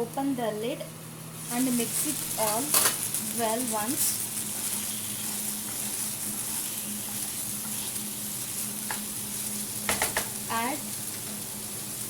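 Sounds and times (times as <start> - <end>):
chicken sizzling in oil: 1.2 - 12.0.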